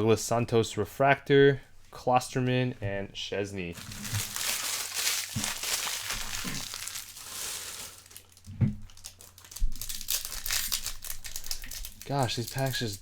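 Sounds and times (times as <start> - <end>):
foil wrapper crinkling and tearing: 3.8 - 13.0.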